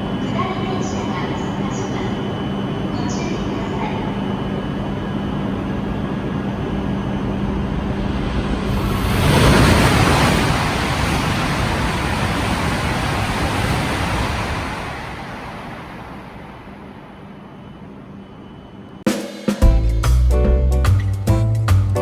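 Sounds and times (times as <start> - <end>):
high-speed train passing: 0.0 - 19.0
music: 19.1 - 22.0.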